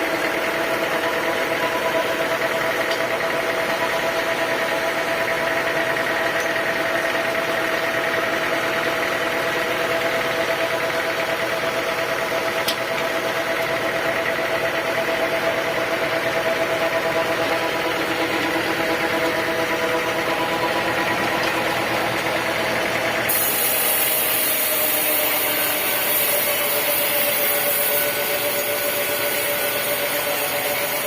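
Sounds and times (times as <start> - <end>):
sawmill machinery humming and whining: 0.0 - 31.0.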